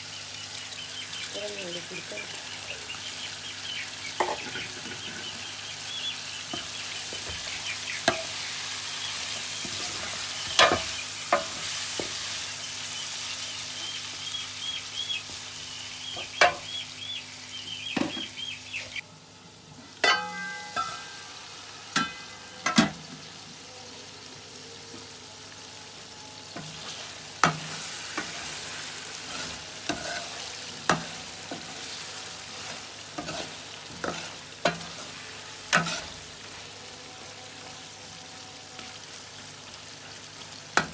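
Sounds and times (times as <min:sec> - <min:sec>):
food sizzling in a pan: 0:00.0 - 0:40.9
metal spoon scraping a pan: 0:06.5 - 0:12.4, 0:26.6 - 0:36.7
ringing metal clangs: 0:20.0 - 0:21.2.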